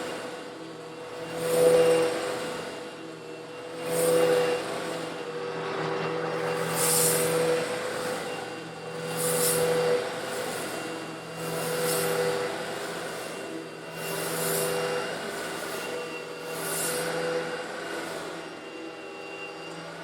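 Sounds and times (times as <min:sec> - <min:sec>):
vacuum cleaner motor hum: 0:00.0 - 0:20.0.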